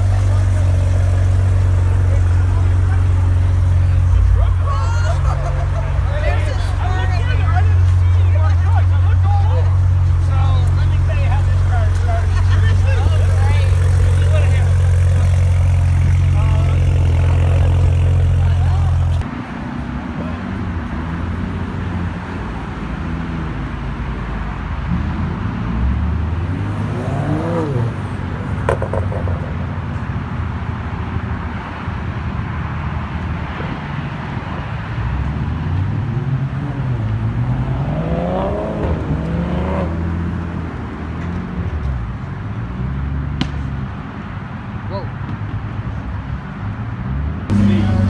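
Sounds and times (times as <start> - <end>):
car engine revving: 0.0 - 19.3, 25.5 - 41.6, 47.5 - 48.0.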